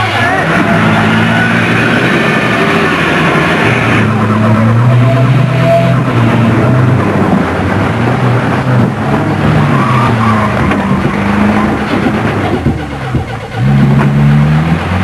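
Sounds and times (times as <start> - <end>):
car engines revving hard: 0.0 - 15.0.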